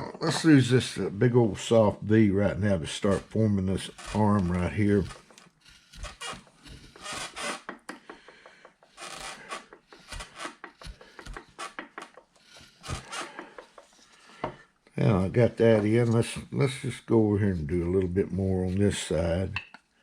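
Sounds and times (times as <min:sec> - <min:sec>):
carving tool scraping wood: 0:01.6 - 0:14.5.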